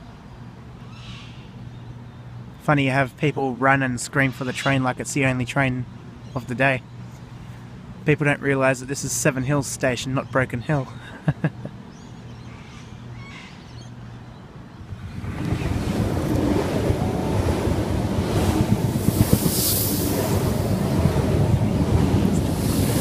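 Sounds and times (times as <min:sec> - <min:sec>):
electric train rumble: 0:14.8 - 0:23.0
wind buffeting microphone: 0:14.8 - 0:23.0.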